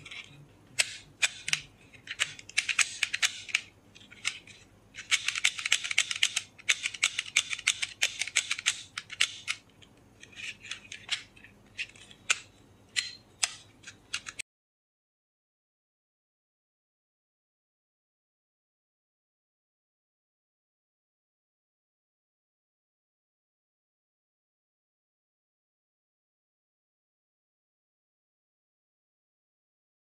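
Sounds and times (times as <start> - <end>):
toy revolver clicking: 5.0 - 9.6.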